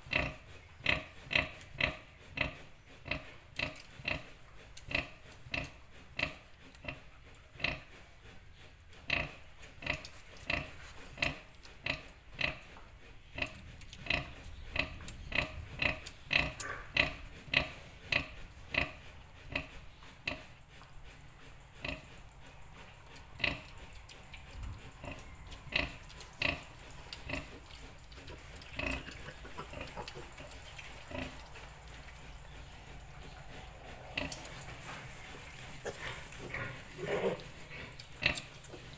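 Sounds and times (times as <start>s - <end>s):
sow grunting: 28.7s - 38.9s.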